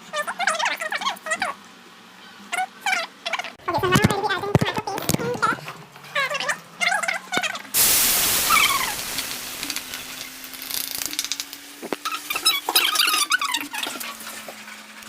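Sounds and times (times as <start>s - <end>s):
stirring clicks and squeaks: 2.6s - 7.7s, 8.5s - 15.0s
food sizzling in a pan: 7.8s - 14.0s.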